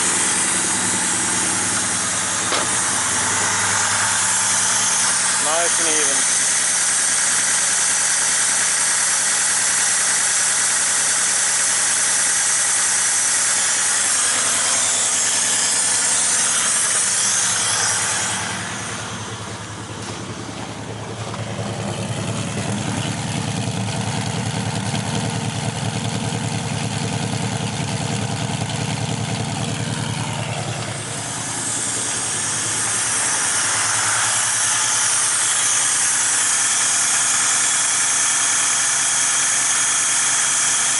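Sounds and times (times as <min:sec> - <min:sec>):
strong hiss: 0:00.0 - 0:09.0, 0:12.8 - 0:21.0, 0:30.8 - 0:40.9
car engine idling: 0:00.0 - 0:40.9.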